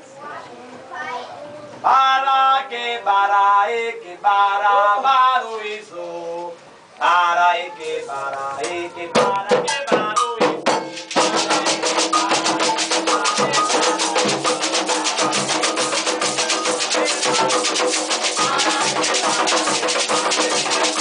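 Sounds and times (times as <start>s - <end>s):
fast hand drumming: 8.6s - 21.0s.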